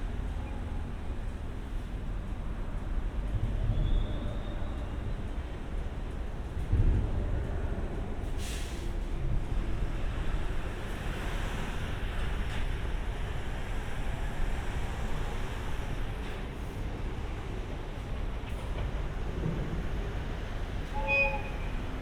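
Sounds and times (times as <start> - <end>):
electric train rumble: 9.0 - 22.0.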